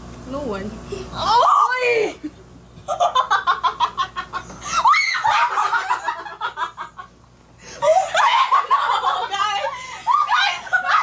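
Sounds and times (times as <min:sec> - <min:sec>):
people laughing: 0:02.9 - 0:11.0.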